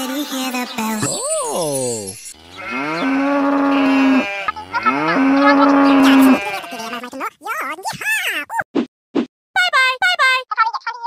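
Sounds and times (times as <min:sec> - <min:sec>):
cow mooing: 0:02.3 - 0:06.9.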